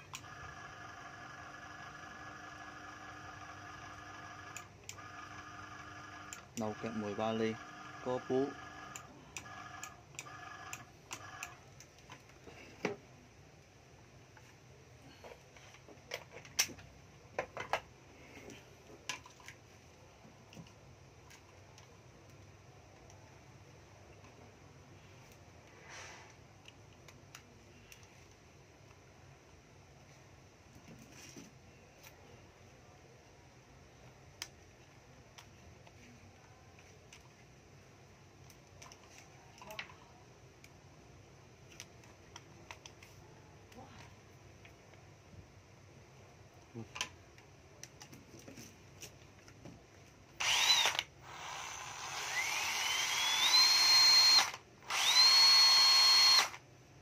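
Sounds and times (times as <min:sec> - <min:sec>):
hammer drill handling clicks: 0:50.4 - 0:56.6.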